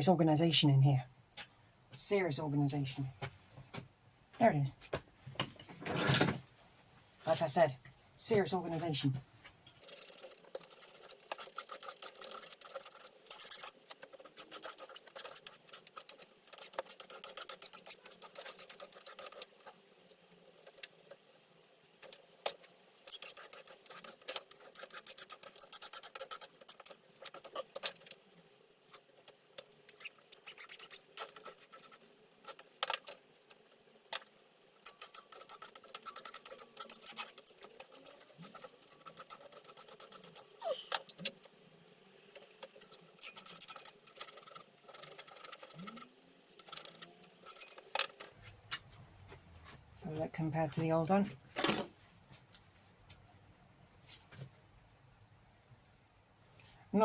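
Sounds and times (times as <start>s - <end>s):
file scraping steel: 9.8s - 41.6s, 42.3s - 48.3s.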